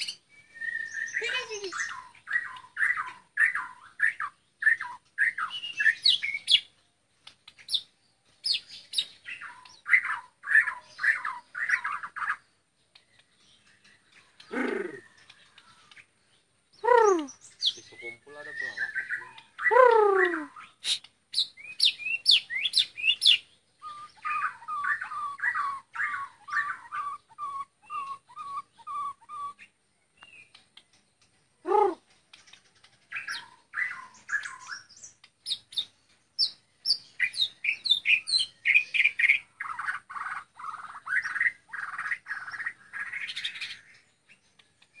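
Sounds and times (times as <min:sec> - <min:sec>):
bird singing clear whistles: 0:00.0 - 0:03.7, 0:16.8 - 0:30.6.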